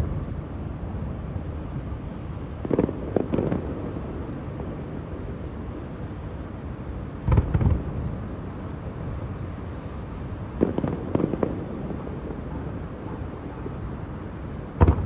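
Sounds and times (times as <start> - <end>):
fireworks bangs and cracks: 2.6 - 4.3, 7.3 - 7.9, 10.5 - 12.4, 14.8 - 15.0.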